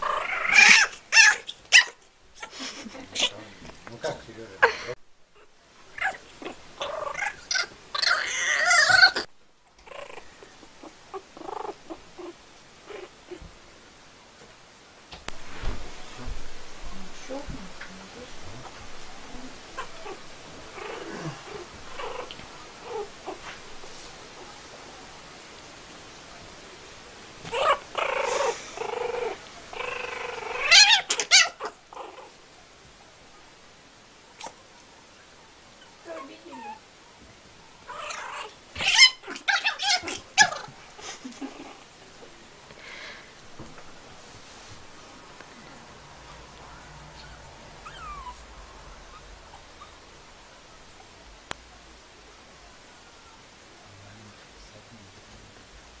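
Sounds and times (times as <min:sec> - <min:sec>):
cat yowling angrily: 0:00.0 - 0:02.0, 0:06.8 - 0:09.3, 0:27.5 - 0:31.7, 0:37.9 - 0:40.8.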